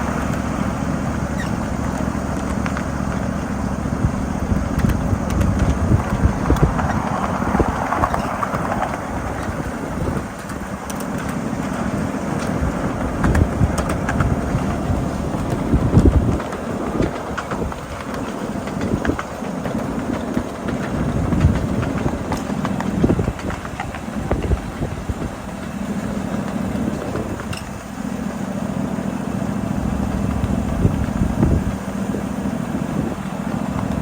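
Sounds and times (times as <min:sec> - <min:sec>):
wheels rumbling on rail: 0:00.0 - 0:34.0.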